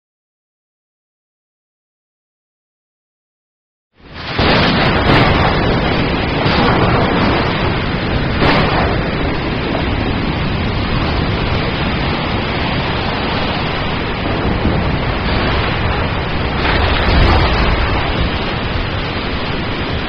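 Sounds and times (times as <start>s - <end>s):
steady rain: 4.0s - 20.0s
thunder: 4.1s - 20.0s.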